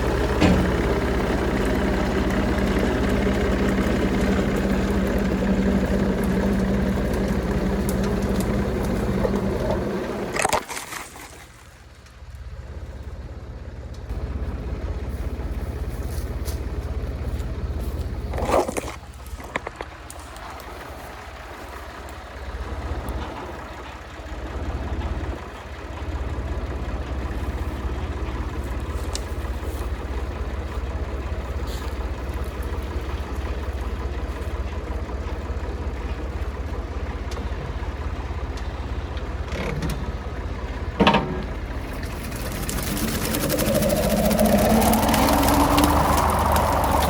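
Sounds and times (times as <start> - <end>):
tractor engine running: 0.0 - 47.0
rising whine: 41.9 - 47.0.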